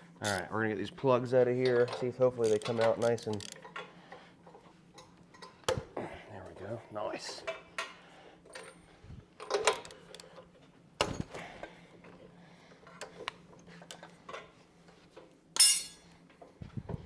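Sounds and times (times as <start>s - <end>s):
metal wrenches clinking on metal: 1.6s - 3.8s, 15.6s - 16.1s.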